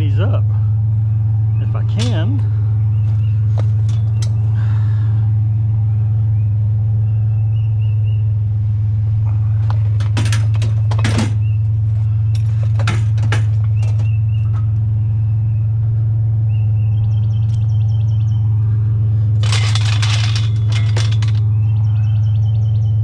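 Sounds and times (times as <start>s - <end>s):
birds chirping: 0.0s - 23.0s
low hum: 0.0s - 23.0s
scrap metal knocking and clanking: 1.9s - 2.6s, 9.6s - 11.6s, 12.3s - 14.7s, 19.4s - 21.6s.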